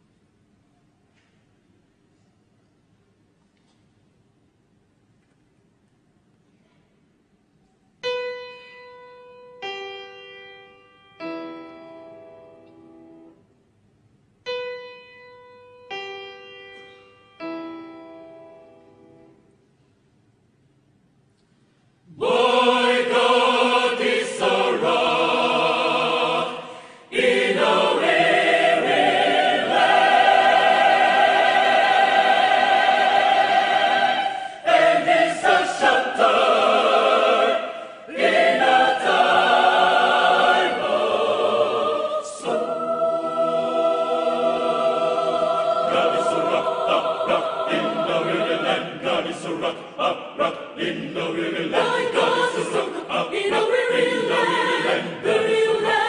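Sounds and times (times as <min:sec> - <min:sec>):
mixed choir singing: 0:22.1 - 0:56.0.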